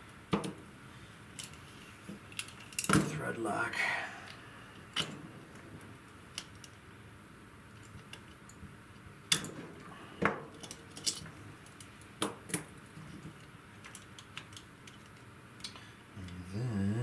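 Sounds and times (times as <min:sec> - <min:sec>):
metal parts clicking and clinking: 0:01.4 - 0:01.6, 0:02.3 - 0:03.1, 0:10.5 - 0:15.8.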